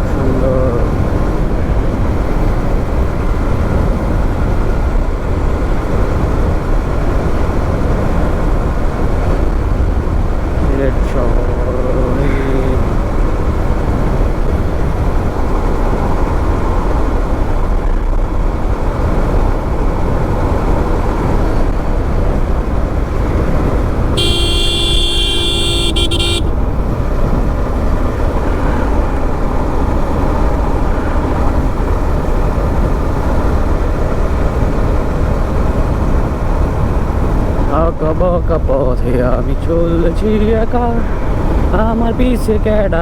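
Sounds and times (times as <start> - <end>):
motorbike riding noise: 0.0 - 43.0
vehicle horn long blast: 24.1 - 26.7.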